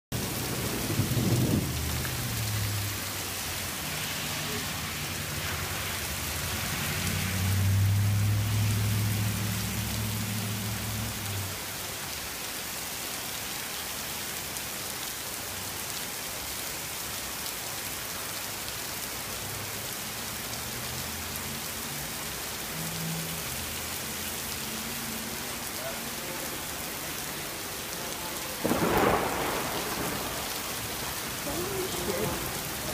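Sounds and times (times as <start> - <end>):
thunder rumbling: 0.1 - 3.4, 28.5 - 32.9
steady rain: 0.1 - 32.9.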